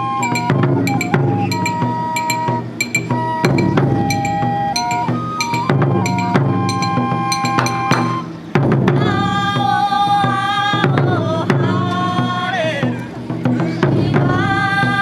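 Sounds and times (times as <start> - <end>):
taiko drum ensemble: 0.0 - 15.0
sustained melodic note: 0.2 - 8.3
sharp drum strikes: 0.2 - 9.0.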